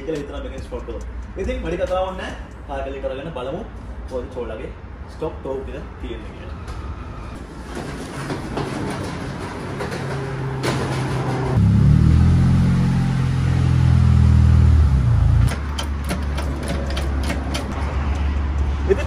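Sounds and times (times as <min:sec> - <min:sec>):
sharp clicks and knocks: 0:15.4 - 0:18.7.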